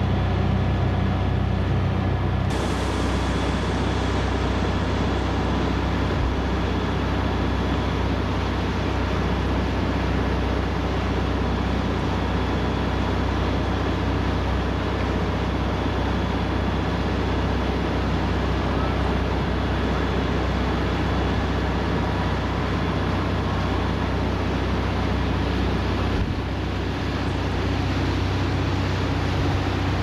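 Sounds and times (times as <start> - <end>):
boat engine droning: 0.0 - 30.0
water noise: 2.5 - 8.8.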